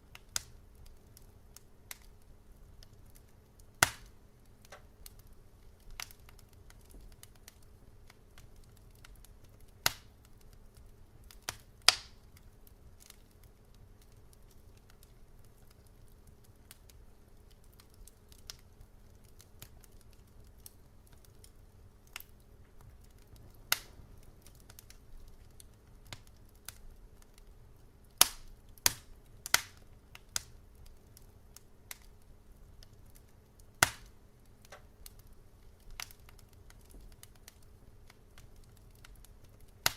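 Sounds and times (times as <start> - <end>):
faint low hum: 0.0 - 39.9
wood fire crackling: 0.0 - 39.9.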